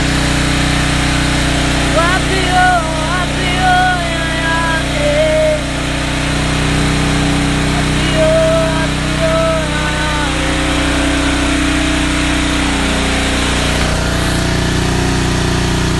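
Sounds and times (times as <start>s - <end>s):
small engine running: 0.0s - 15.9s.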